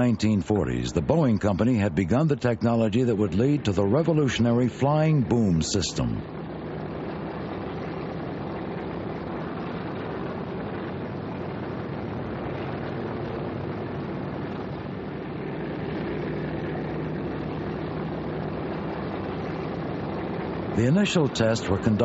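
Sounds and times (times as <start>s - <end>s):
aircraft engines droning: 0.0s - 22.0s.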